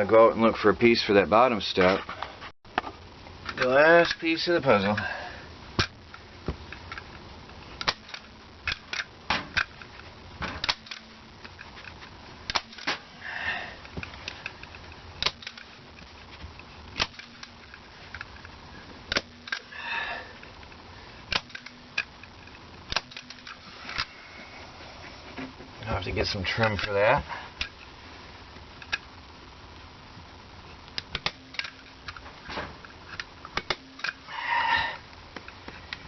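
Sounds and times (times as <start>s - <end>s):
carpet rustling: 13.8s - 19.7s.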